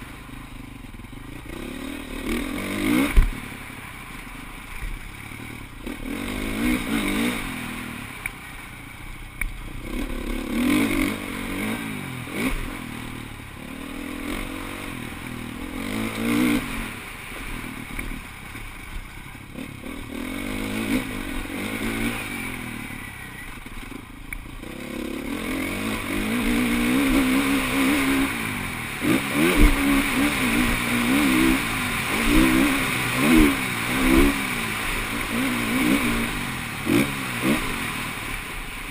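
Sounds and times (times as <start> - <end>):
motocross bikes revving: 0.0 - 38.9.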